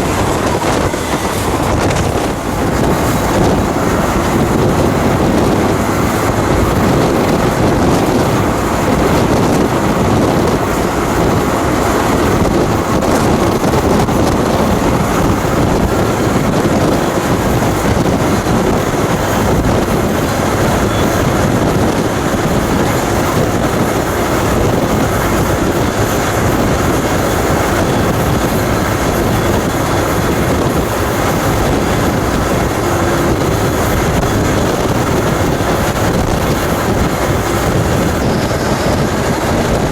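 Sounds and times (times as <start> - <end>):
train wheels on track: 0.0 - 39.9
wind on microphone: 0.0 - 39.9.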